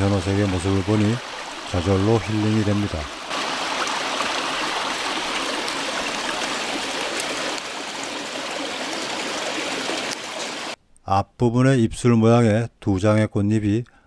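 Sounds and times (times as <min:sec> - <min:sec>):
stream water rushing: 0:00.0 - 0:10.8.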